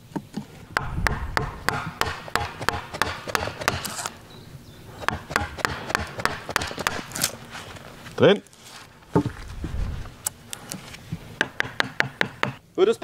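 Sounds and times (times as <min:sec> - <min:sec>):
chisel knocking into wood: 0:00.8 - 0:03.9, 0:05.0 - 0:07.0, 0:11.4 - 0:12.6.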